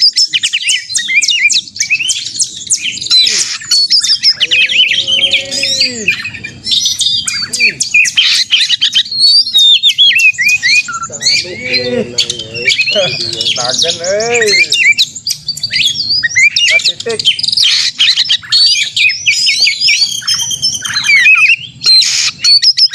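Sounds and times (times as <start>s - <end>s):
birds chirping and whistling: 0.0s - 22.9s
low drawn-out bird notes: 0.0s - 22.9s.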